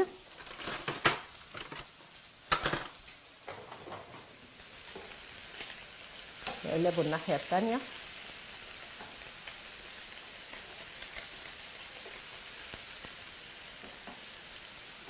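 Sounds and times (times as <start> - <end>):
fish sizzling in oil: 0.0 - 15.0.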